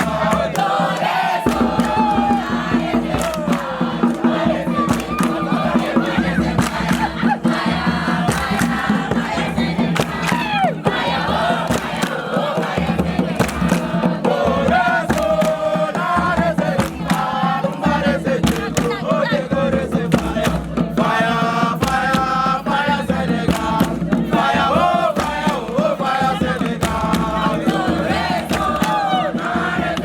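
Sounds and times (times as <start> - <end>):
sharp percussive hits: 0.0 - 19.0
group chanting and singing: 0.0 - 30.0.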